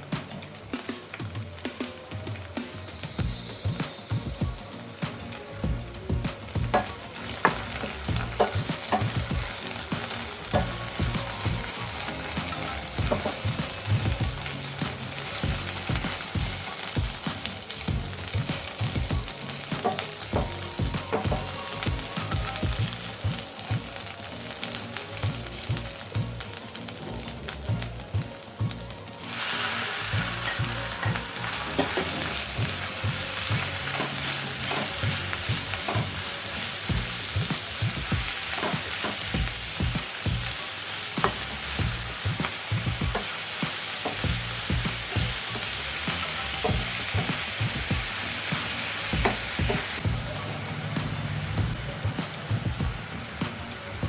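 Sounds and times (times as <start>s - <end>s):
food sizzling in a pan: 0.0s - 54.0s
spatula knocking and scraping pan: 12.4s - 17.1s, 19.8s - 21.6s.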